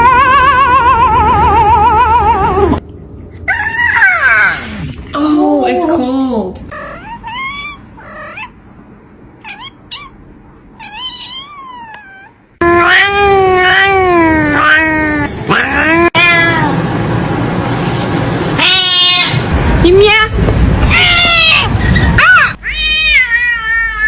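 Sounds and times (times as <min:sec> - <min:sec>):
cat meowing: 0:06.7 - 0:08.5, 0:09.4 - 0:10.2, 0:10.8 - 0:16.8, 0:18.6 - 0:19.4, 0:20.9 - 0:24.0.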